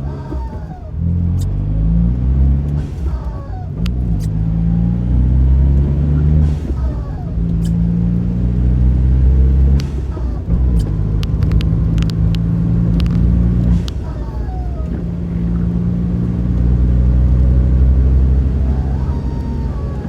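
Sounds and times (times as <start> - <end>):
car engine and road noise: 0.0 - 20.0
sharp clicks: 6.4 - 8.0, 9.6 - 15.8.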